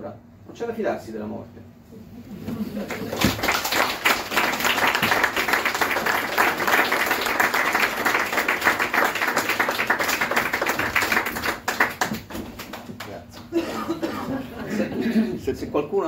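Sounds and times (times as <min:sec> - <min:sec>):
audience applauding: 0:02.8 - 0:13.5.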